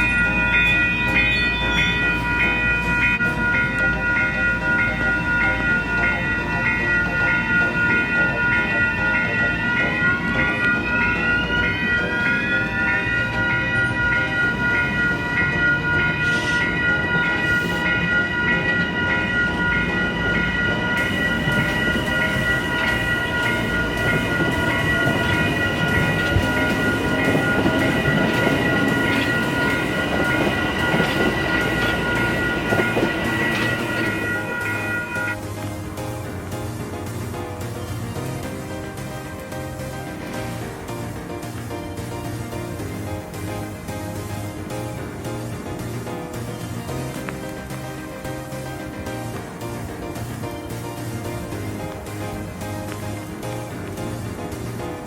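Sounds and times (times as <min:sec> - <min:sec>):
high whining tones: 0:00.0 - 0:36.6
train rumble: 0:00.0 - 0:55.0.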